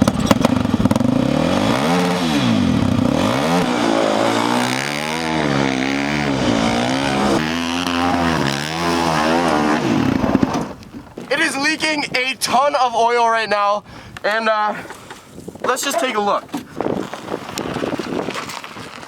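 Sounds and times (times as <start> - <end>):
dirt-bike engine revving: 0.0 - 10.8.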